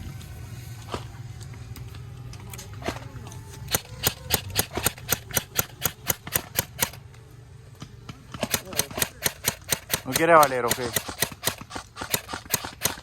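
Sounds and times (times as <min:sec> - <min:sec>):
airsoft gun shots: 0:03.7 - 0:07.0, 0:08.4 - 0:13.0.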